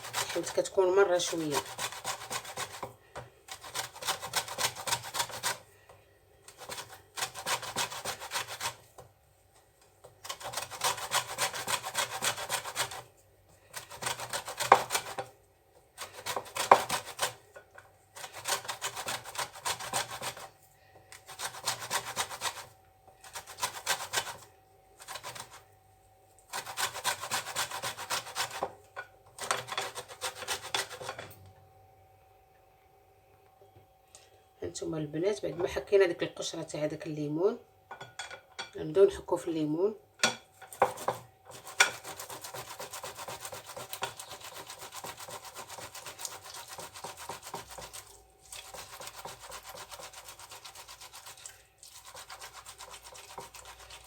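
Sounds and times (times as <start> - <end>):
orange peel rasping on grater: 0.0 - 2.9, 3.5 - 5.6, 6.5 - 8.9, 10.2 - 13.1, 13.7 - 15.3, 18.2 - 20.6, 21.2 - 25.6, 26.5 - 28.6, 40.7 - 54.0.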